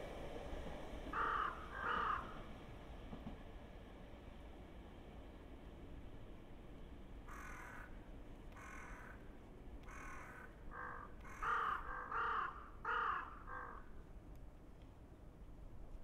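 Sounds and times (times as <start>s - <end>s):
bird cawing harshly: 1.2s - 2.4s, 7.3s - 8.0s, 9.9s - 13.9s.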